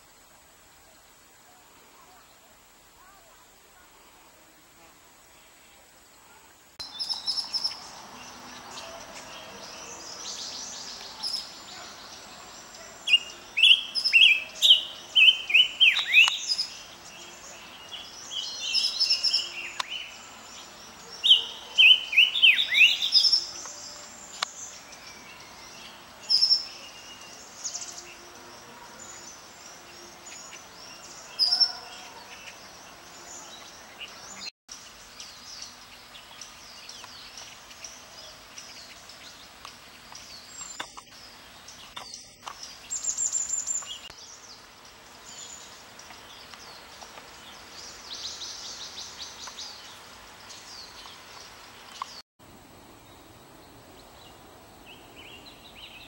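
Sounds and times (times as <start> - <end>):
high bird chirps: 10.4 - 16.8
bird whistled song: 13.0 - 16.8, 21.2 - 23.9.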